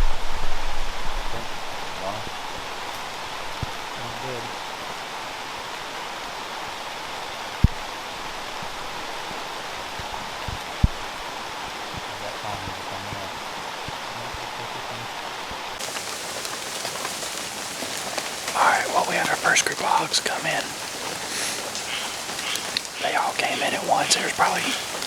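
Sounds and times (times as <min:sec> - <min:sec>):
rain falling: 0:15.8 - 0:25.0.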